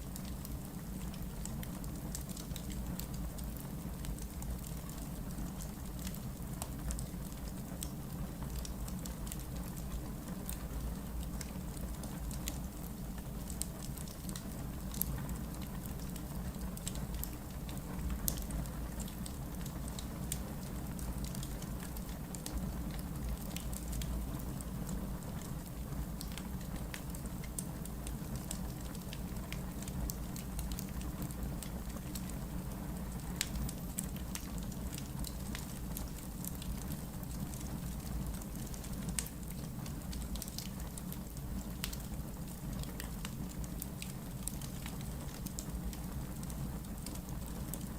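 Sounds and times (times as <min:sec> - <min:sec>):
logs crackling and popping: 0:00.1 - 0:47.9
flames rumbling: 0:18.8 - 0:47.9.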